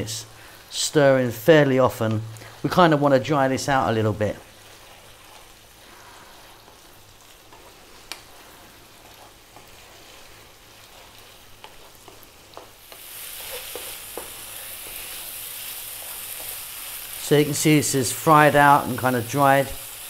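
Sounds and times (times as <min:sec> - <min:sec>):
sauce sizzling in a frying pan: 0:00.0 - 0:20.0
wooden spatula scraping a pan: 0:04.6 - 0:05.6, 0:06.3 - 0:16.9.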